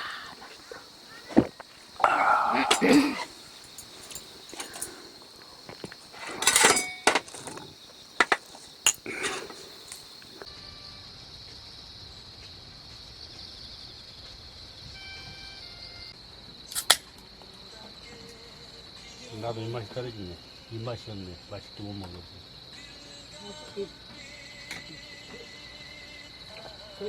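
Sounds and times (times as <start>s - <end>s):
crickets chirring: 0.0s - 27.0s
dishes and utensils clinking: 6.2s - 7.6s, 8.2s - 9.7s.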